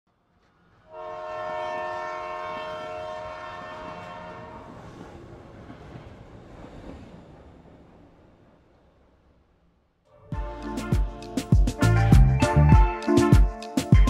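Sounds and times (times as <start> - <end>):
train rumbling and clattering: 0.2 - 12.3
train horn chord: 0.8 - 4.8, 10.1 - 13.7.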